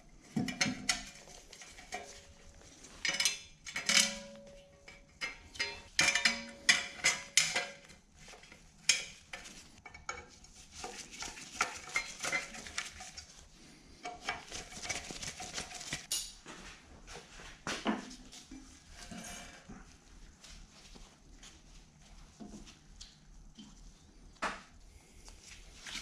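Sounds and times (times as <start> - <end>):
metal rattling and scraping: 0.1 - 16.1
metal tools clinking: 3.0 - 7.7.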